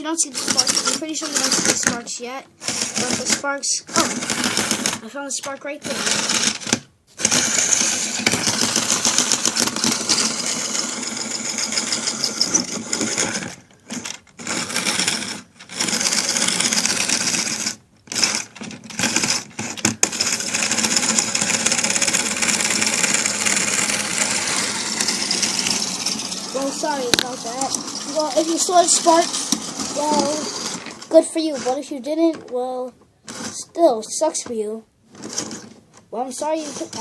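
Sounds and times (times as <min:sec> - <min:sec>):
electric motor whirring: 0:05.8 - 0:31.8
wheels clattering on rails: 0:20.2 - 0:32.6.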